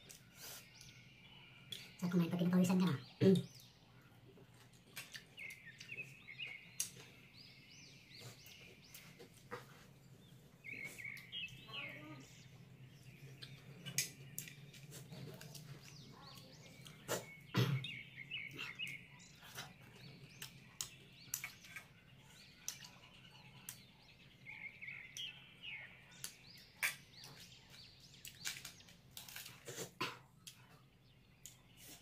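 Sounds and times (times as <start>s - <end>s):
birds chirping: 0.0s - 32.0s
person chewing food: 4.1s - 11.4s, 13.2s - 17.5s, 18.5s - 23.9s, 26.2s - 32.0s.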